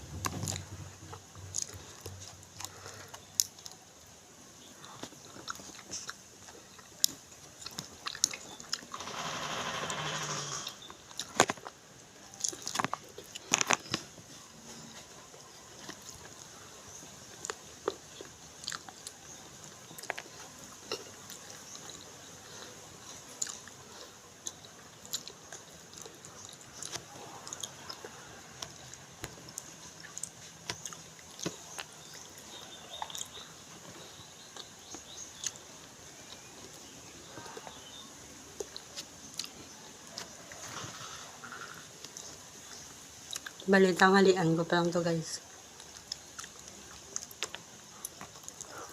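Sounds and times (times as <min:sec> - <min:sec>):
food crunching and clicking: 0:00.0 - 0:43.7, 0:45.6 - 0:48.9
person chewing with open mouth: 0:00.1 - 0:04.0, 0:04.6 - 0:09.0, 0:10.7 - 0:40.7, 0:42.0 - 0:43.6, 0:45.8 - 0:48.9.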